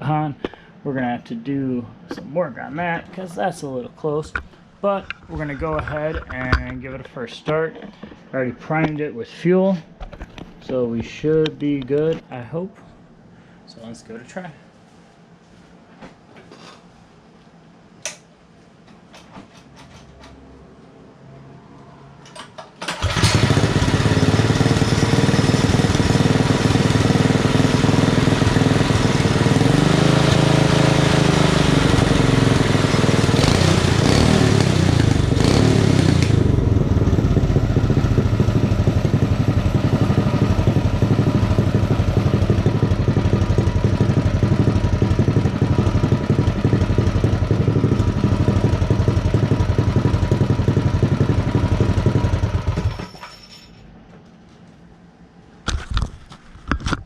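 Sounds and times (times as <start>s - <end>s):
mini bike engine revving and idling: 22.8s - 53.1s.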